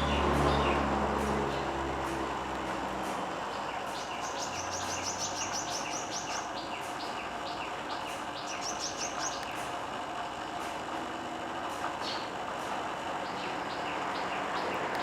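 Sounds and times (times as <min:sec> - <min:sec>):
bird chirping: 0:03.5 - 0:09.6, 0:13.2 - 0:15.0.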